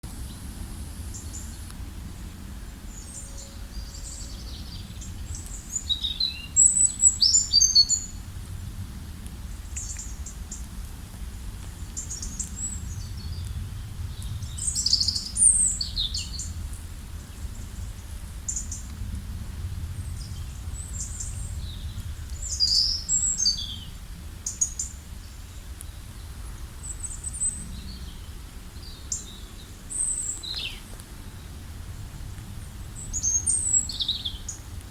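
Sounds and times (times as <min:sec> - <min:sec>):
steady low rumble: 0:00.0 - 0:34.9
birds chirping: 0:11.9 - 0:16.6, 0:20.0 - 0:31.6.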